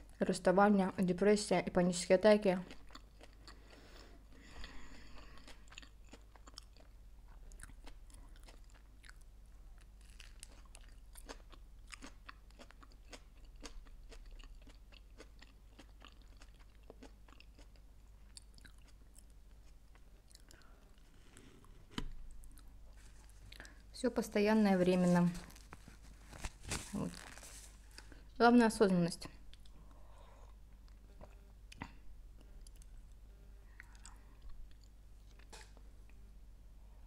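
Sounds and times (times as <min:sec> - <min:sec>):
chewing sandwich with crunches: 0:02.6 - 0:23.8.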